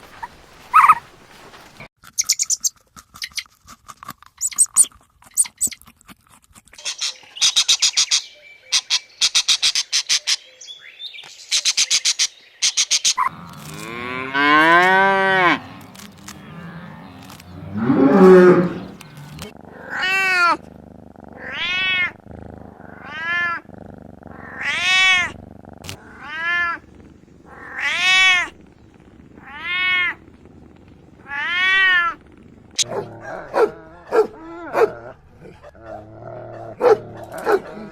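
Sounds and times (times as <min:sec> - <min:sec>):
cat meowing: 0:21.4 - 0:22.2, 0:23.0 - 0:23.7, 0:24.4 - 0:25.4, 0:26.0 - 0:26.9, 0:27.5 - 0:28.6, 0:29.3 - 0:30.2, 0:31.2 - 0:32.2.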